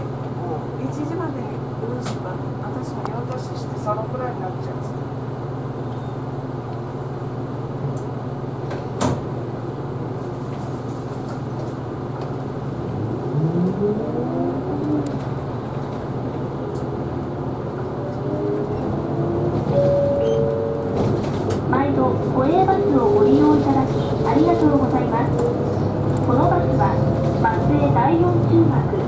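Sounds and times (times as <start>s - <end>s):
bus drivetrain humming: 0.0s - 29.0s
click inside bus: 2.0s - 2.3s, 2.9s - 3.5s, 5.8s - 7.0s, 7.8s - 9.3s, 10.5s - 13.0s, 14.5s - 29.0s
rising whine of bus: 3.3s - 29.0s.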